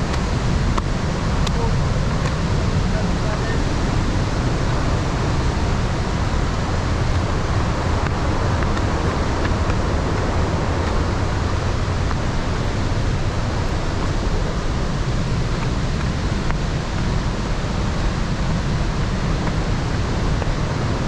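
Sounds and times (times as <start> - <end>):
deep rumble: 0.0 - 21.0
waterfall rushing: 0.0 - 21.0.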